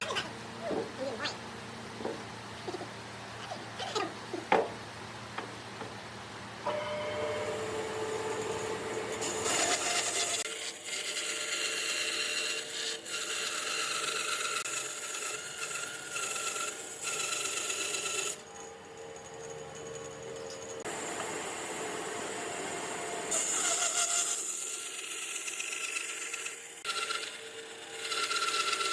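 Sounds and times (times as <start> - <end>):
power tool sanding wood: 6.7 - 18.4.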